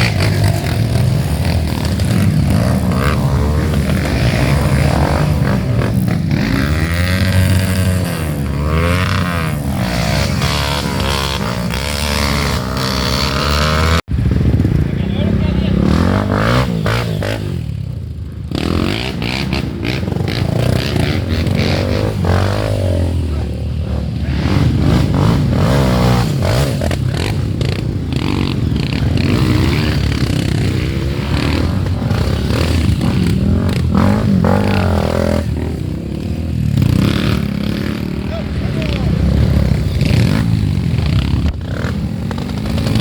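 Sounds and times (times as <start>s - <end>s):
motorcycle engines revving: 0.0s - 43.0s
clatter: 39.8s - 43.0s.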